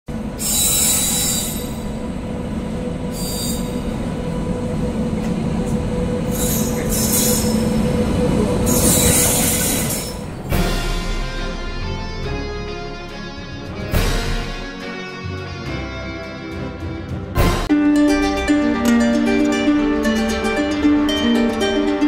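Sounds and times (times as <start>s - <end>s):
train rumble and hum: 0.1s - 14.9s
high-pitched wheel squeal: 0.3s - 2.1s, 3.0s - 4.0s, 6.2s - 10.4s.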